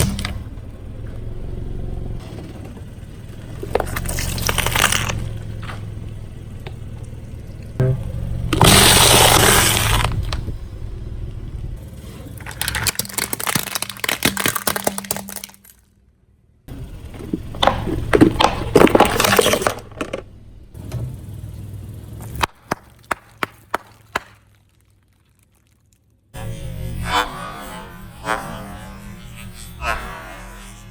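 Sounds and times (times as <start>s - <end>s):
tyre crushing crunchy objects: 0.0s - 0.6s, 3.4s - 5.8s, 8.5s - 10.6s, 12.2s - 15.8s, 17.1s - 20.3s, 22.2s - 26.1s
low car engine hum: 0.0s - 25.2s, 26.2s - 30.9s
sharp cracks: 12.4s - 15.8s, 22.2s - 25.0s.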